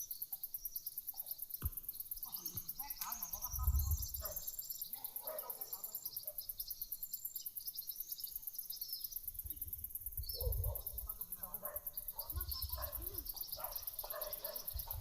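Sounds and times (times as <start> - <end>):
birds calling: 0.0 - 15.0
insects chirping: 0.0 - 15.0
wind buffeting microphone: 3.4 - 4.4, 9.4 - 11.2, 12.3 - 13.3, 14.7 - 15.0.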